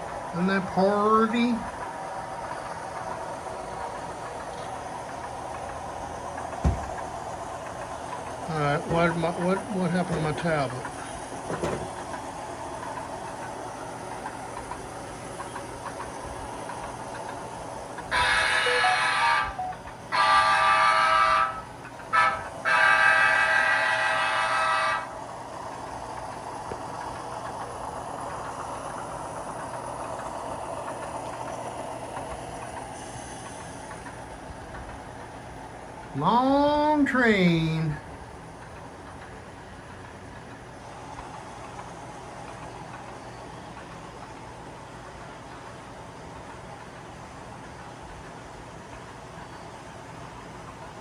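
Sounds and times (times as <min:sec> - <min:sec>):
model train rolling: 0:00.0 - 0:51.0
model train horn: 0:18.1 - 0:25.1.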